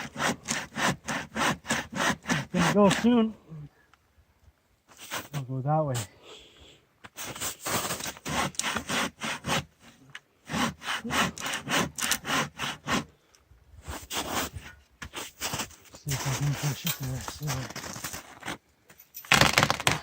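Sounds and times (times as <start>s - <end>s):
hand saw cutting wood: 0.0s - 3.2s, 7.2s - 13.1s, 13.9s - 18.6s.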